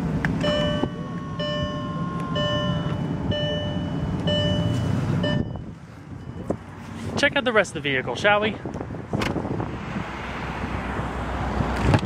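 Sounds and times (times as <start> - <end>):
car engine idling: 0.0 - 6.5
car warning chime: 0.4 - 6.6.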